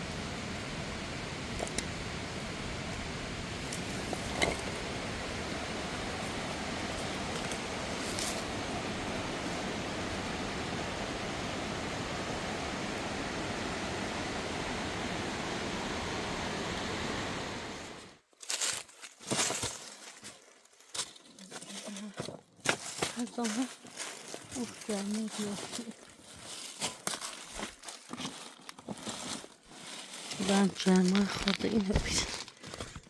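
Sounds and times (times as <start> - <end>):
water running over rocks: 0.0 - 18.2
waterfall rushing: 0.0 - 18.2
crackling rustling sounds: 0.0 - 33.0.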